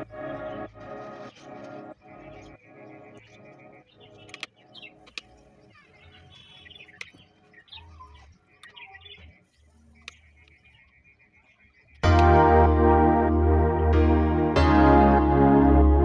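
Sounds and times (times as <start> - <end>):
birds chirping: 0.0 - 14.5
faint soft music: 0.0 - 16.0
sharp clicks: 4.2 - 5.4.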